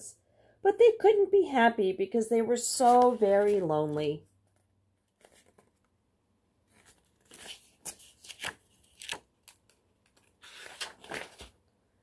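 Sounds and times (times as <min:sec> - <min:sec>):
paper rustling: 0:02.8 - 0:03.7, 0:05.1 - 0:05.8, 0:06.7 - 0:11.6.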